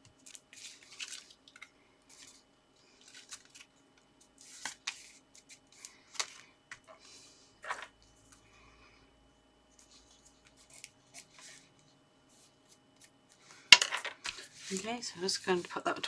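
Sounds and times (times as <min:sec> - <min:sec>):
paper rustling: 0:14.2 - 0:16.0.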